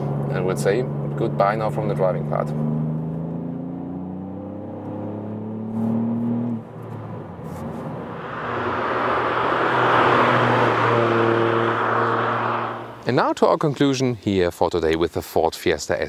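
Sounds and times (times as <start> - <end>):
car engine accelerating: 0.0 - 13.1
car driving past: 2.6 - 13.1.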